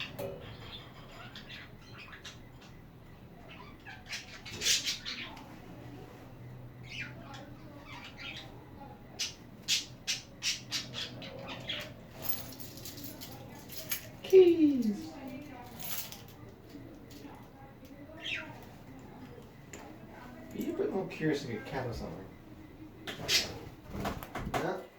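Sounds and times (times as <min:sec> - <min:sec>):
budgerigars chirping and squawking: 0:00.0 - 0:05.6, 0:06.8 - 0:12.0, 0:23.2 - 0:23.7.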